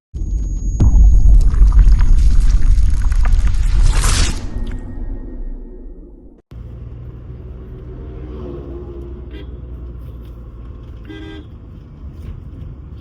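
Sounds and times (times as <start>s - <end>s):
car road and engine rumble: 6.2s - 13.0s
vehicle horn toot: 11.1s - 11.5s.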